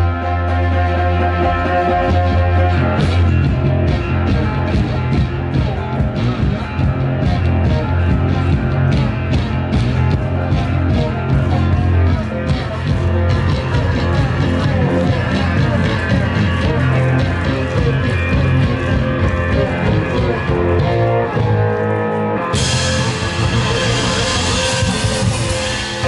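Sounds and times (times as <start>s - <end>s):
blues-rock band playing: 0.0s - 26.0s.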